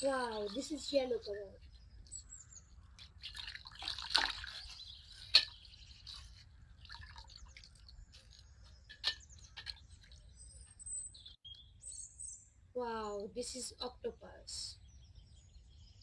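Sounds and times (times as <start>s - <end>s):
water splashing: 0.0s - 1.7s, 2.9s - 10.4s.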